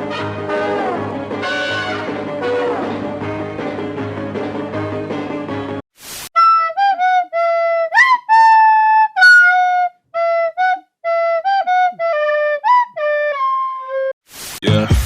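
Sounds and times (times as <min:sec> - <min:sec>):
flute-like instrument melody: 0:00.1 - 0:03.0, 0:06.4 - 0:14.2.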